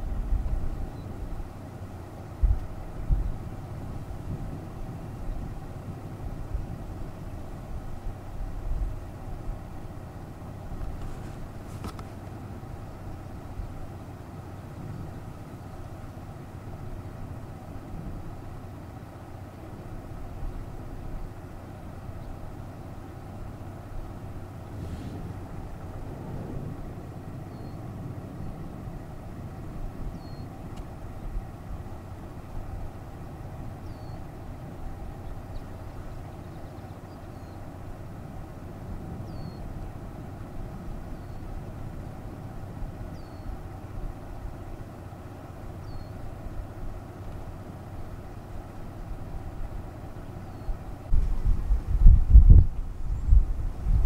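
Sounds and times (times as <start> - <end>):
vehicle engine idling: 0.0 - 54.0
bird chirping: 27.4 - 27.8, 29.6 - 30.6, 33.8 - 34.3, 35.2 - 37.6, 39.2 - 39.7, 41.1 - 41.6, 43.1 - 43.6, 45.8 - 46.2, 50.2 - 50.9.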